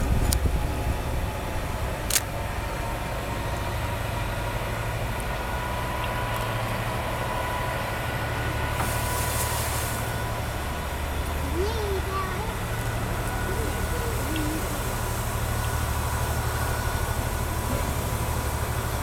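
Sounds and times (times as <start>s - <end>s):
steam locomotive rumbling: 0.0s - 19.0s
high steam hiss: 8.4s - 10.8s, 12.6s - 19.0s.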